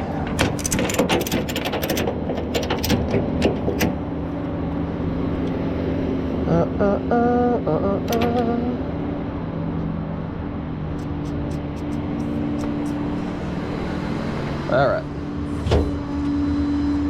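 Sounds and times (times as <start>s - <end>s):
truck engine humming: 0.0s - 17.0s
sharp clicks and rattles: 0.3s - 4.0s, 11.0s - 13.2s.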